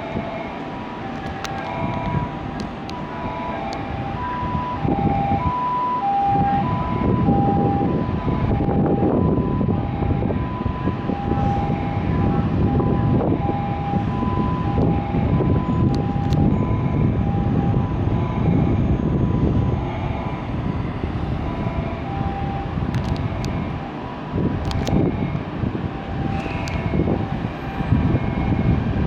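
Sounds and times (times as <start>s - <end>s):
train rumbling: 0.0s - 29.0s
electronic two-tone signal: 10.5s - 20.3s.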